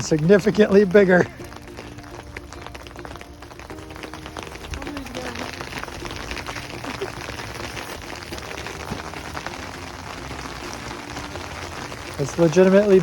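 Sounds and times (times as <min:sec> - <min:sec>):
hail pelting down: 0:00.0 - 0:13.0.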